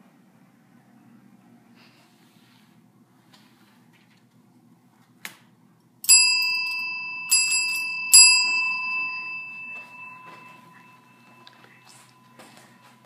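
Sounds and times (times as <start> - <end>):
small metal bell ringing: 6.0 - 13.0.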